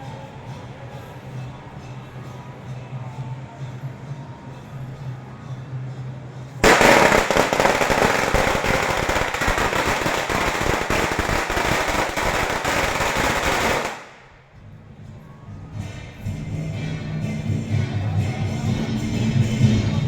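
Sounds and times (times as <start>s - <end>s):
firecrackers crackling: 6.6s - 14.4s.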